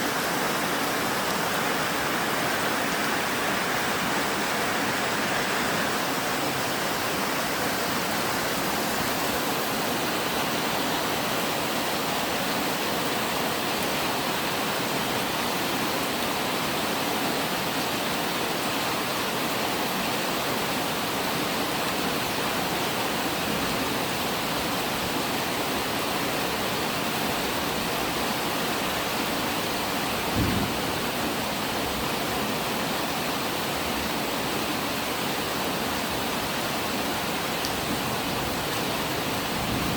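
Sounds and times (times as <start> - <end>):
steady rain falling: 0.0 - 39.9
low thump: 30.3 - 30.8.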